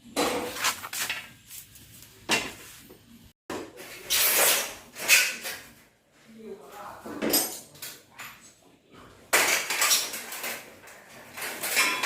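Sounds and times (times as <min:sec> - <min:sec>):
rubbing or scraping noise: 0:00.2 - 0:03.0.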